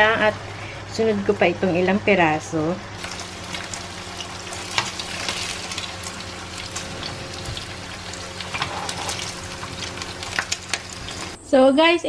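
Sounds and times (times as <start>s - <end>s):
meat sizzling in hot oil: 3.0s - 11.4s.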